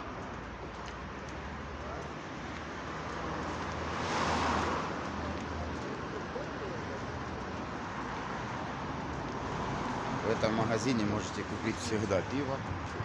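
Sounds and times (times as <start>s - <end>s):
street traffic: 0.0s - 13.0s
car passing close by: 3.7s - 5.2s.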